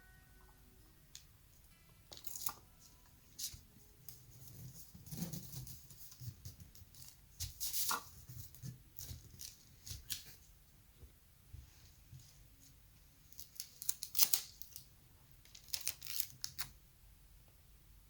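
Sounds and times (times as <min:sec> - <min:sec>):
rustling and crinkling materials: 0:02.1 - 0:10.6, 0:11.6 - 0:16.8.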